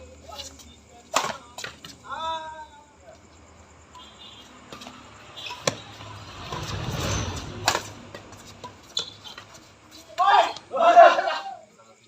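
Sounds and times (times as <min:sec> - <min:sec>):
rackets striking shuttlecock: 0:01.1 - 0:01.8, 0:05.5 - 0:05.9, 0:07.6 - 0:09.5.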